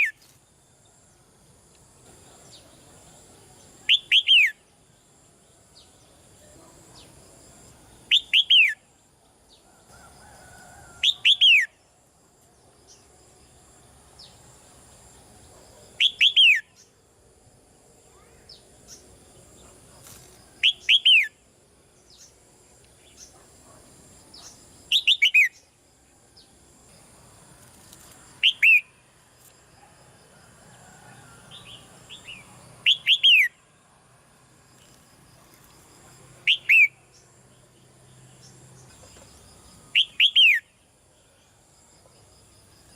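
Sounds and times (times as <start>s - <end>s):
bird calling: 36.5s - 37.1s.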